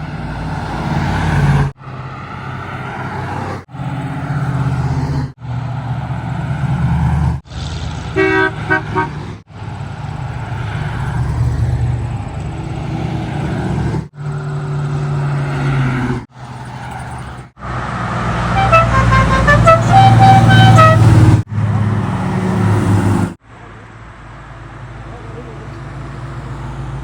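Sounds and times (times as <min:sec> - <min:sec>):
car engines rumbling past: 0:00.0 - 0:27.0
car horn tooting: 0:08.2 - 0:09.2, 0:18.5 - 0:21.4
musical car horn tune: 0:08.2 - 0:09.2, 0:18.4 - 0:21.4.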